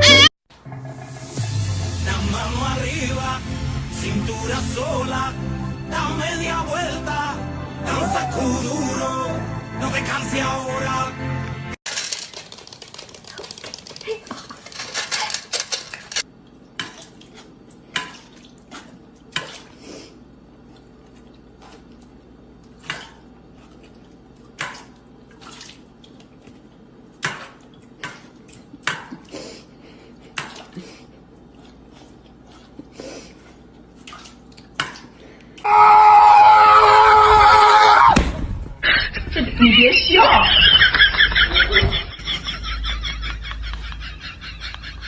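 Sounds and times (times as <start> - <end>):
puppy clicking plastic bowl: 12.0 - 16.2.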